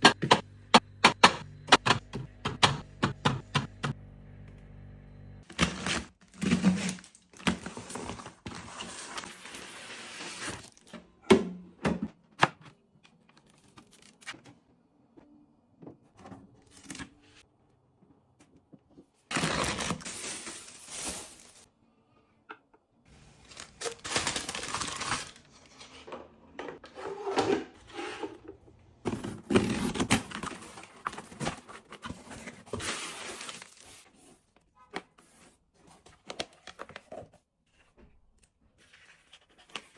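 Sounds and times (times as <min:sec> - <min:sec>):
packaging rustling and tearing: 0:05.5 - 0:10.8, 0:19.3 - 0:21.7, 0:23.4 - 0:25.5, 0:29.4 - 0:34.0.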